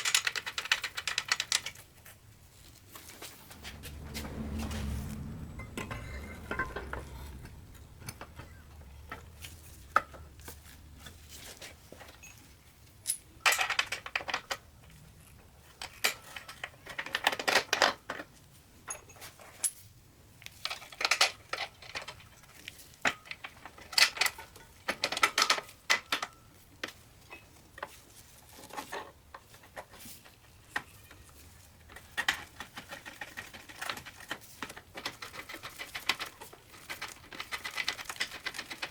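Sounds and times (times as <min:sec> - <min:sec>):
low hum: 0:03.0 - 0:10.0
metal tools clinking: 0:03.6 - 0:10.2.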